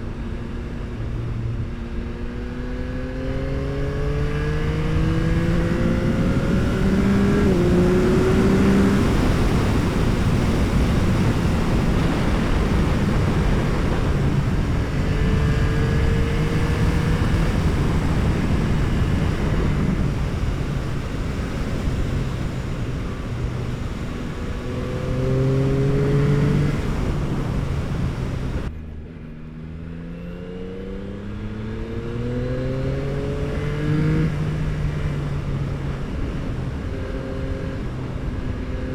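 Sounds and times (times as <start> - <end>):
wind rush on microphone: 0.0 - 28.7, 31.0 - 38.9
motorcycle engine revving: 0.5 - 38.9.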